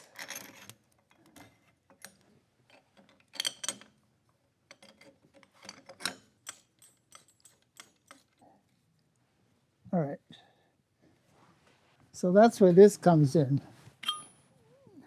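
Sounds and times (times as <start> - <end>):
steel parts clicking and knocking: 0.0 - 4.0, 4.7 - 8.4
ringing metal clinks: 14.0 - 14.5.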